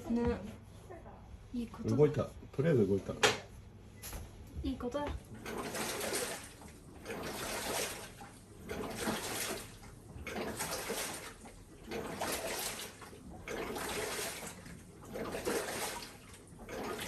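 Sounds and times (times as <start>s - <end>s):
washing machine water sloshing: 4.3s - 17.0s.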